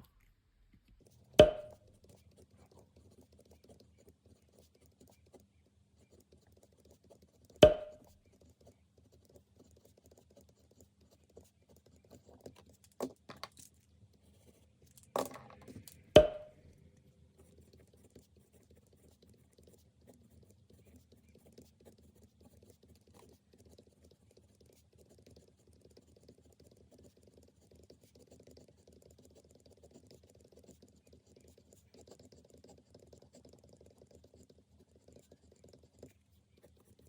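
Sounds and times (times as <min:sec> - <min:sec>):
sharp ringing knocks: 0:01.4 - 0:01.8, 0:07.6 - 0:08.0, 0:16.2 - 0:16.5.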